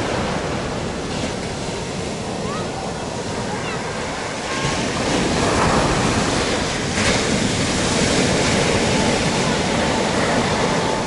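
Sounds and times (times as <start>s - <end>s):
waves breaking on beach: 0.0s - 11.0s.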